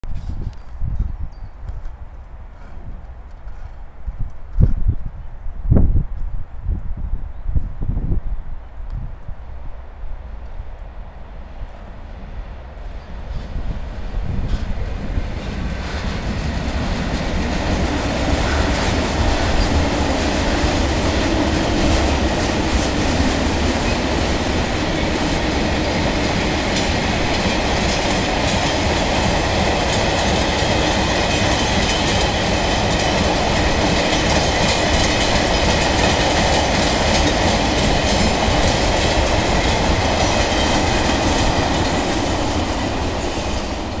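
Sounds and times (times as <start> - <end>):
train wheels clattering over rail joints: 13.3 - 44.0.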